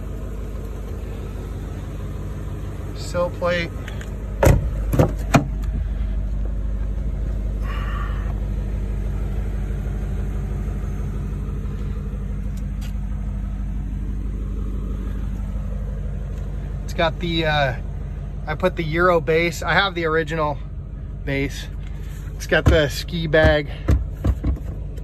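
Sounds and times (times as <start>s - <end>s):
car engine idling: 0.0s - 25.0s
sharp knocks: 4.4s - 5.6s, 22.6s - 24.8s.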